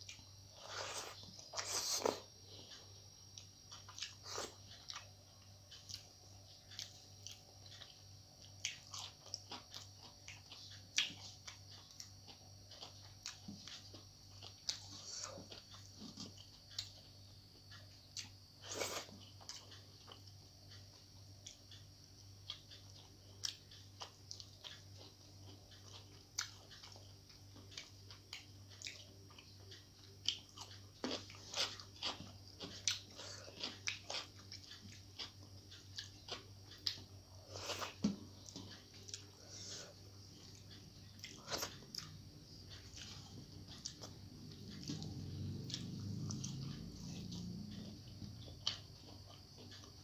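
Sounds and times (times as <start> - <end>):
chewing and lip smacks: 5.7 - 17.1, 22.4 - 50.0.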